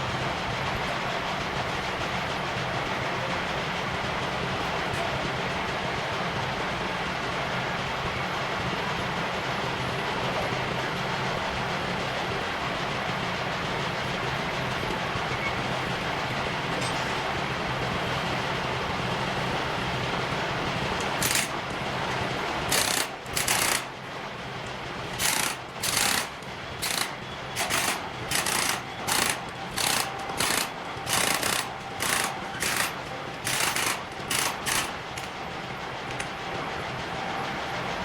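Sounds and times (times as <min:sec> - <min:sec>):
steady machine hum: 0:00.0 - 0:38.0
pneumatic impact wrench bursts: 0:21.2 - 0:21.6, 0:22.7 - 0:23.9, 0:25.1 - 0:35.3.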